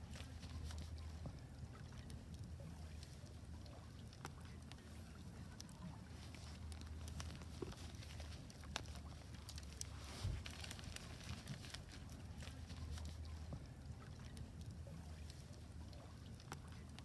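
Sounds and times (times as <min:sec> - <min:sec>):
low fire rumble: 0:00.0 - 0:17.0
wood fire crackling and popping: 0:05.6 - 0:15.7.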